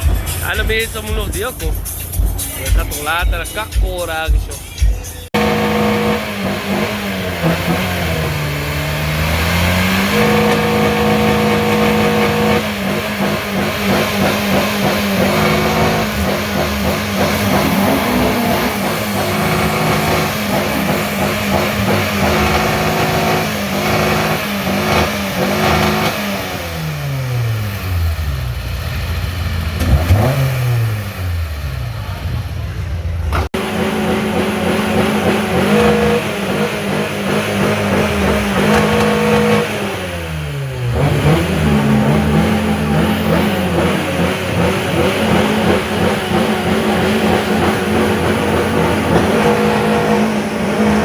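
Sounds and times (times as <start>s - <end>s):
car engine revving: 0.0s - 51.0s.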